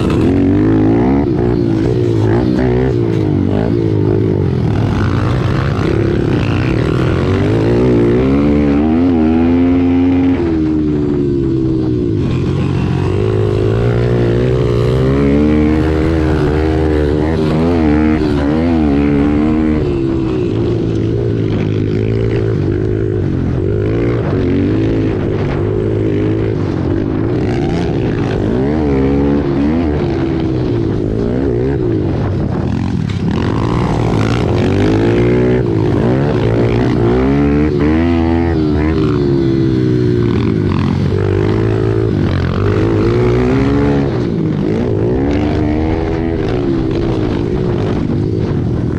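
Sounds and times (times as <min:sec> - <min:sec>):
pit bike engines revving: 0:00.0 - 0:48.9.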